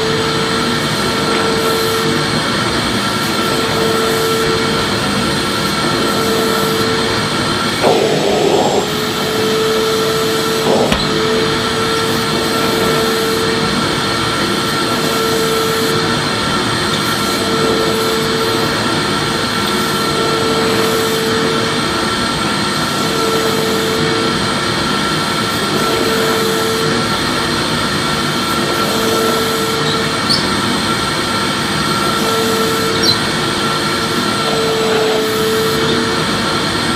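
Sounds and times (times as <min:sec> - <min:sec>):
vacuum cleaner running: 0:00.0 - 0:36.9.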